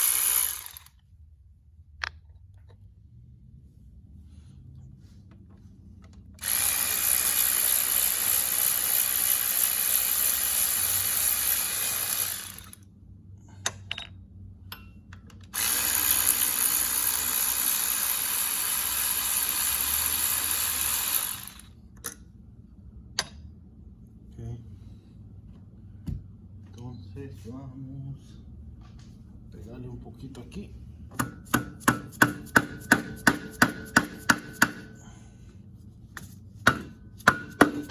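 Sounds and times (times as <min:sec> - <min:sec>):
power tool running: 0:00.0 - 0:00.9, 0:06.4 - 0:12.8, 0:15.5 - 0:21.8.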